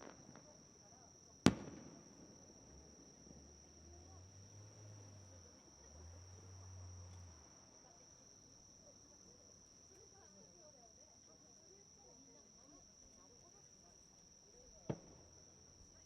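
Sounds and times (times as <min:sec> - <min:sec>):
firework bang: 0:00.0 - 0:00.6, 0:01.4 - 0:03.9, 0:14.9 - 0:15.4.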